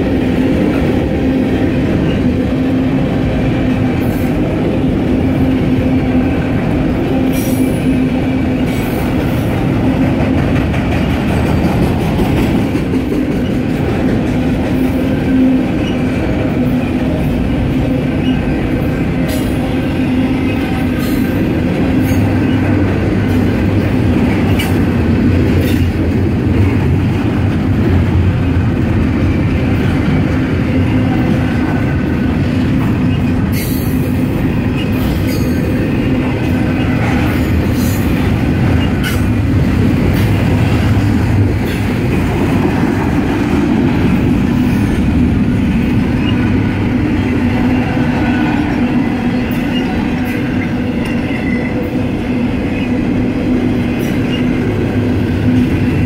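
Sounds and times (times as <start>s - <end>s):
train wheels rumbling on rail: 0.0s - 56.0s
clanks over rail joints: 20.5s - 28.6s, 36.4s - 46.4s.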